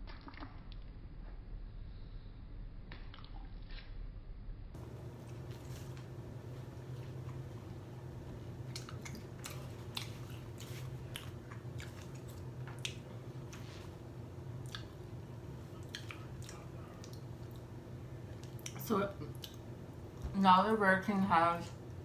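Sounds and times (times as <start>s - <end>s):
wet chewing: 0.0s - 0.9s, 5.1s - 20.2s
steady low hum: 0.0s - 22.0s.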